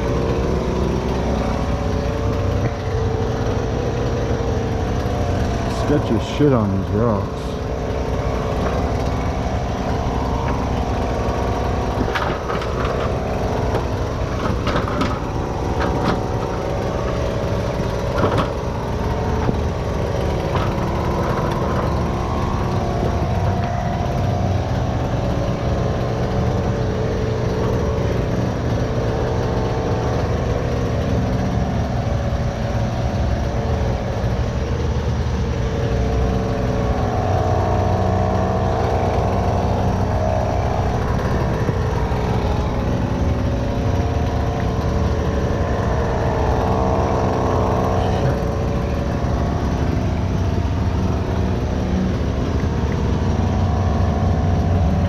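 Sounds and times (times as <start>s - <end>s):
skid steer engine running: 0.0s - 55.0s
sharp knocks and cracks: 12.0s - 16.5s, 18.1s - 18.6s.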